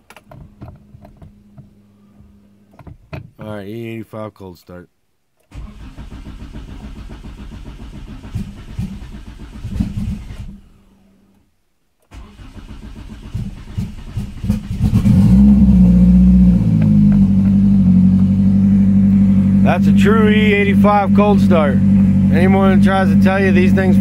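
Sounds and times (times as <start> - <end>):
starter motor cranking: 5.5 - 10.6, 12.1 - 17.6
engine sputtering misfires: 5.5 - 11.0, 12.1 - 24.0
car engine running: 12.9 - 24.0.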